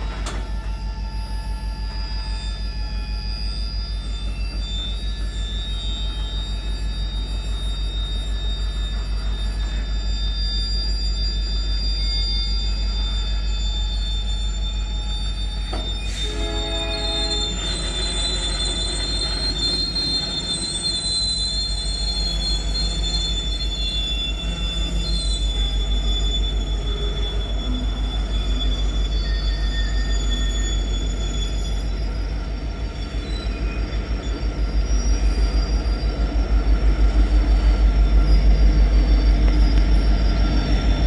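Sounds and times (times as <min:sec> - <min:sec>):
brief pitched tone: 0:00.0 - 0:31.9
train wheels squealing: 0:00.0 - 0:41.0
freight train wagons rumbling: 0:15.4 - 0:41.0.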